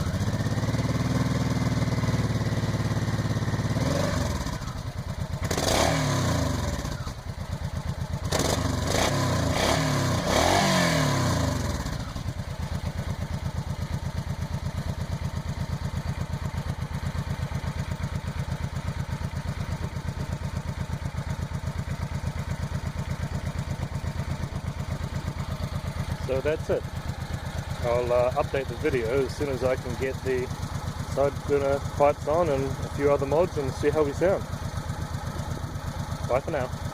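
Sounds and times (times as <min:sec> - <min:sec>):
motorcycle engine revving and idling: 0:00.0 - 0:36.9.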